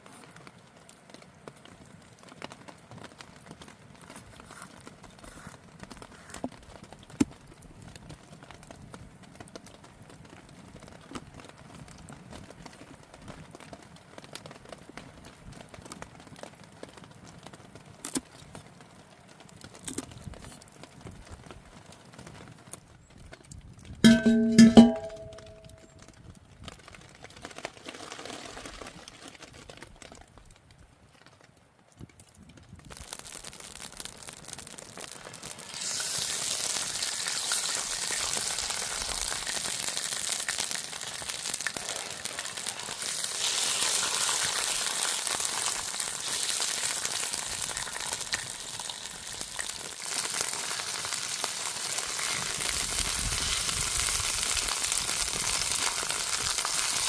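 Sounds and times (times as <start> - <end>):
food sizzling in hot oil: 24.0 - 25.7, 32.9 - 57.0.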